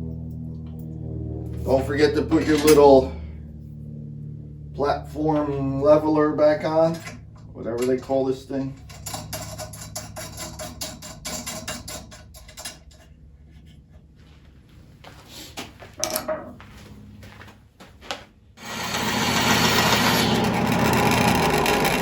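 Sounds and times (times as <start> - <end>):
parts clicking and rattling: 8.7 - 14.2
bandsaw cutting wood: 18.6 - 22.0.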